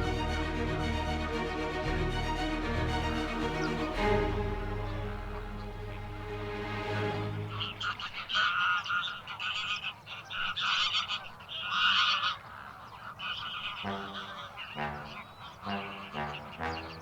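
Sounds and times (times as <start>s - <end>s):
flamingos honking: 2.4s - 17.0s
deeper separate honks: 13.8s - 17.0s.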